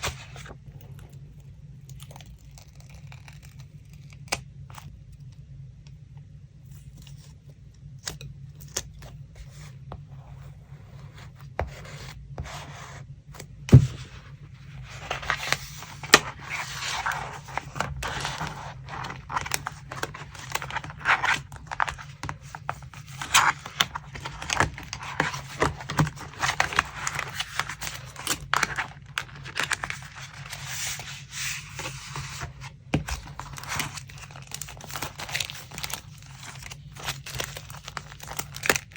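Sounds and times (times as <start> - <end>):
paper rustling: 11.2 - 38.9.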